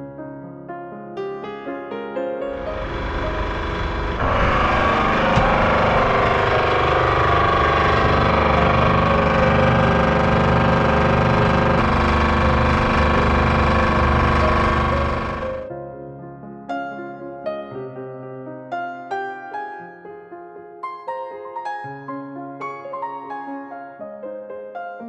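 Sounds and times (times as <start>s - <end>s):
machine motor running with whine: 2.5s - 15.7s.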